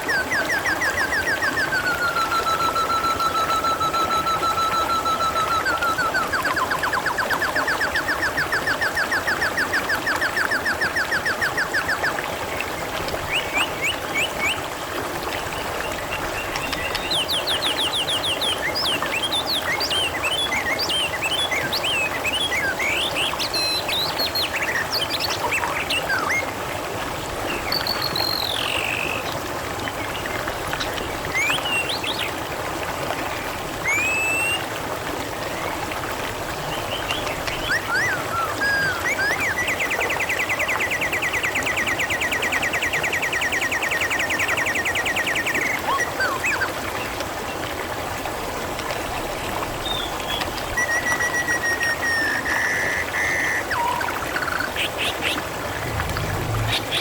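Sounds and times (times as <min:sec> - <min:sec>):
babbling water: 0:00.0 - 0:57.0
birds chirping and whistling: 0:49.9 - 0:57.0.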